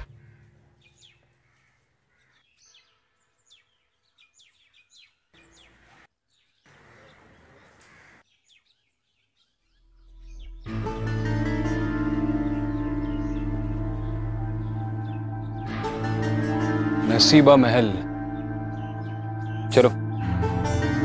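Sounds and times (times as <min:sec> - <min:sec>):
faint birds chirping: 0:00.0 - 0:20.9
music: 0:09.9 - 0:21.0.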